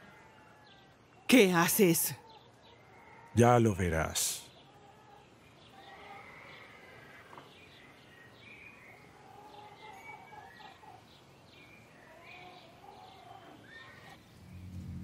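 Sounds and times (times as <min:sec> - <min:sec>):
faint outdoor background noise: 0:00.0 - 0:15.0
songbirds chirping: 0:00.0 - 0:15.0.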